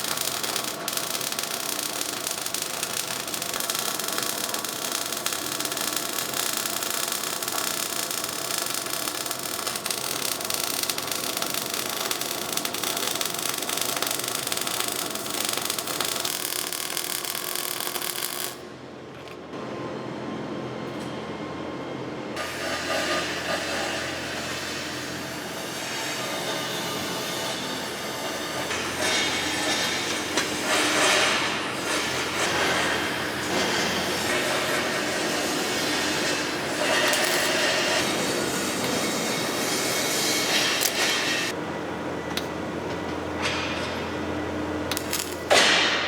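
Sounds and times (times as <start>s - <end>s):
welding arc crackling: 0.0s - 18.7s, 28.6s - 41.6s, 44.9s - 46.0s
noisy shop sound: 13.2s - 46.0s.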